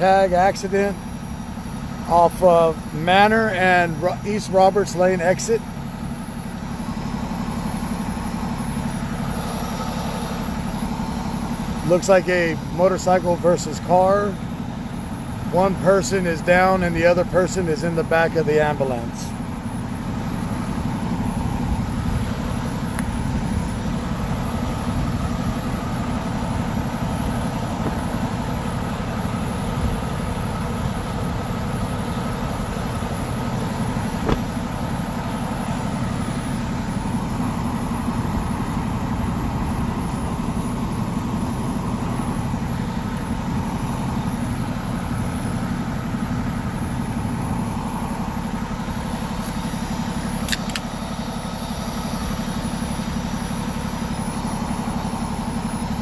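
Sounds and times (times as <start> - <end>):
vehicle engine idling: 0.0 - 56.0
sharp click: 50.4 - 50.9.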